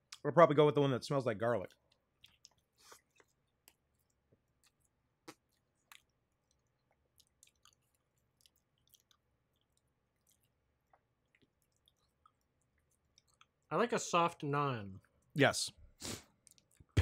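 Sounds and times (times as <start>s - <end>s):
person chewing soft bread: 1.4s - 13.7s, 16.0s - 17.0s
wet mouth smacks and clicks: 1.7s - 13.6s, 16.4s - 16.9s.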